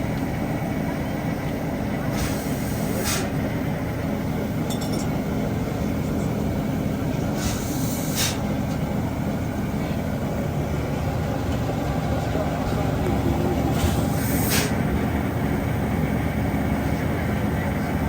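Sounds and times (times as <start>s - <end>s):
train rumbling on rails: 0.0s - 18.0s
short steam hiss: 2.1s - 3.4s, 7.4s - 8.5s, 13.7s - 14.8s
metallic clink: 4.7s - 5.2s.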